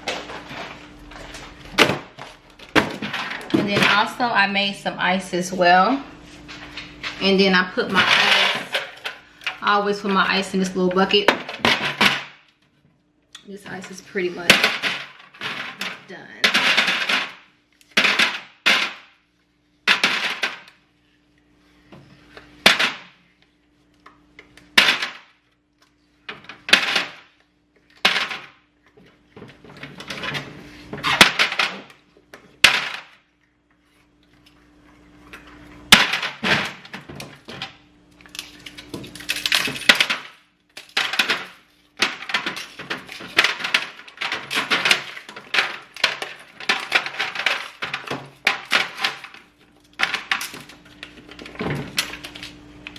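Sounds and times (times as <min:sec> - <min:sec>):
ice cubes clattering: 0:38.4 - 0:49.4.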